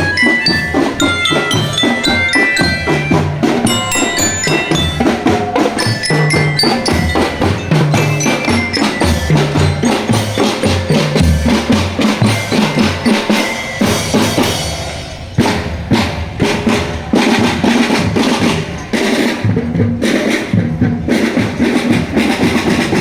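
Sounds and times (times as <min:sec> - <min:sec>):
glockenspiel bells melody: 0:00.0 - 0:15.5
bass and snare drums: 0:00.0 - 0:23.0.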